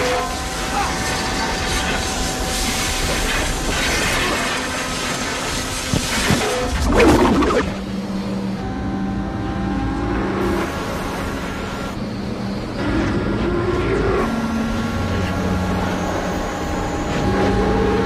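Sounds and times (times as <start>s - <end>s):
sports car engines at full throttle: 5.4s - 18.0s.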